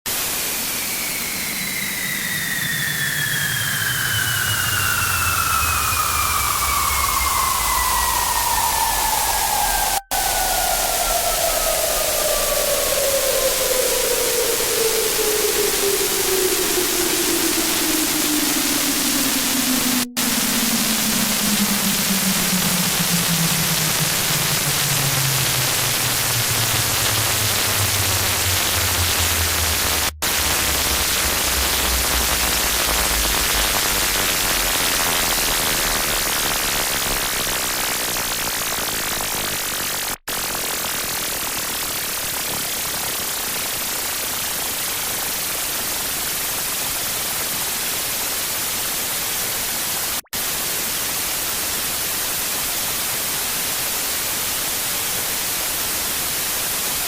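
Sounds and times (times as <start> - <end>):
harsh noise static: 0.1 - 57.0
low drone stepping down: 0.4 - 36.4.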